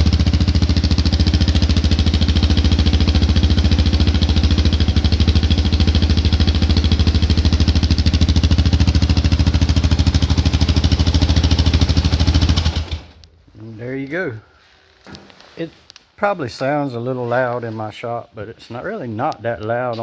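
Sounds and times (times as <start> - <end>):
motorcycle engine idling: 0.0 - 13.4.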